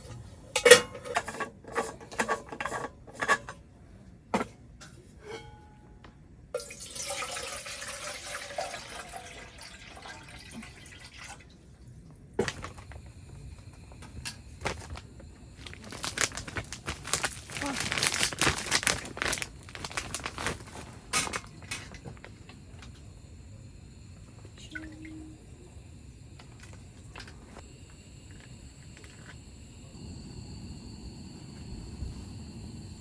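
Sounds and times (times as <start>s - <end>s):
cookware clicking and knocking: 0.5s - 3.6s
liquid pouring into a pot: 6.6s - 12.0s.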